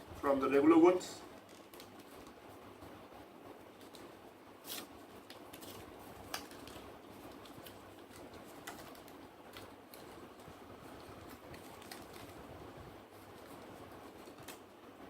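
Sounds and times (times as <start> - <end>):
packaging rustling: 3.8 - 14.7.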